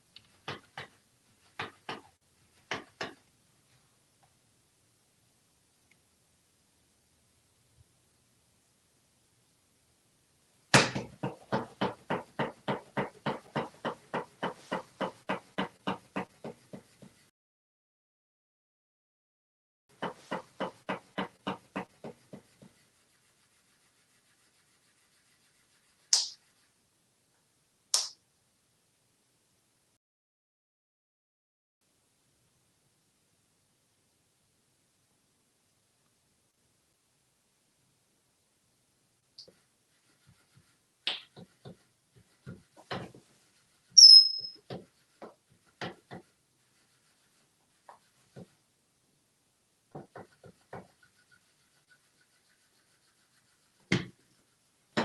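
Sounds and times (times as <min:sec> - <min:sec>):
high whistle-like squeak: 0:44.0 - 0:44.6.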